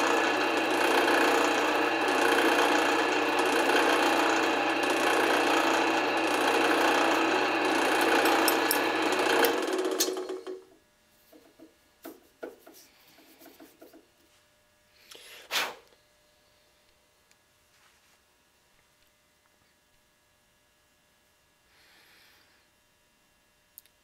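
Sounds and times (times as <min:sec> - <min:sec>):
drill press motor hum: 0:00.0 - 0:10.8.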